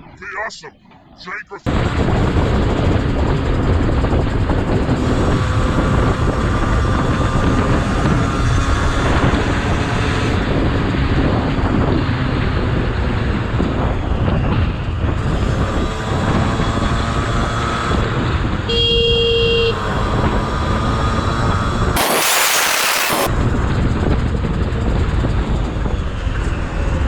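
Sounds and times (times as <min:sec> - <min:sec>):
wind and road noise: 0:00.0 - 0:19.1, 0:19.7 - 0:23.3
vehicle horn: 0:18.7 - 0:19.8.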